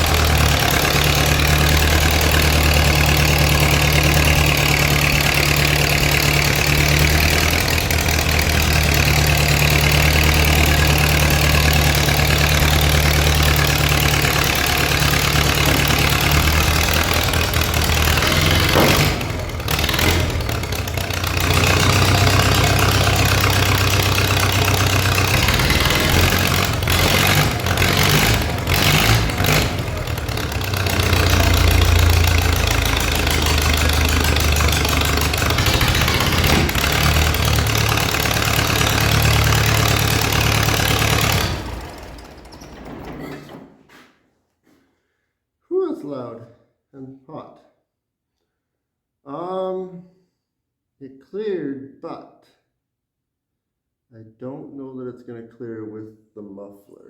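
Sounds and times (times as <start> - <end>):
tractor engine idling: 0.0 - 43.6.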